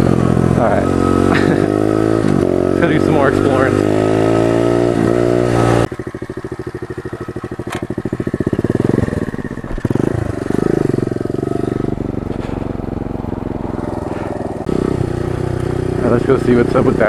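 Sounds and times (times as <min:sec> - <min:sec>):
pit bike engine revving: 0:00.0 - 0:17.0.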